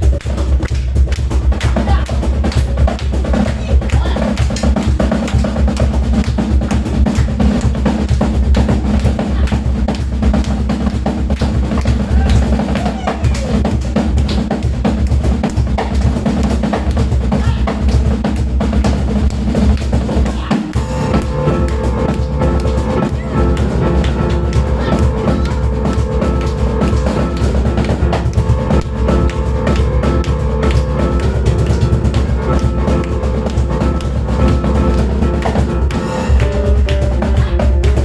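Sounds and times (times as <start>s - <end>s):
drum kit played fast: 0.0s - 38.0s
piano notes: 20.7s - 38.0s.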